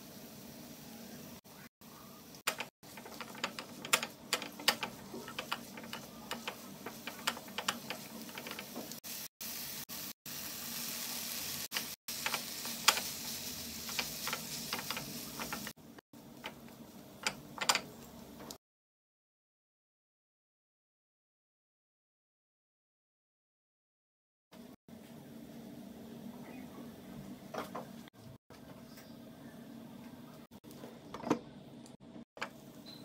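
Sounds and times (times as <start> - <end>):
vegetables sizzling in a frying pan: 0.0 - 1.4, 2.2 - 15.8.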